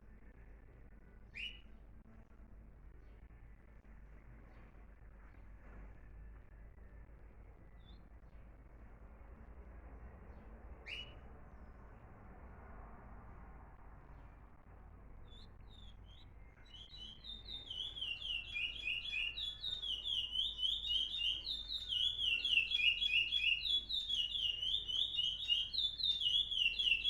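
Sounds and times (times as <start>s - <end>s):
songbird singing whistled notes: 1.3s - 1.8s, 7.4s - 8.2s, 10.3s - 11.3s, 15.2s - 27.0s.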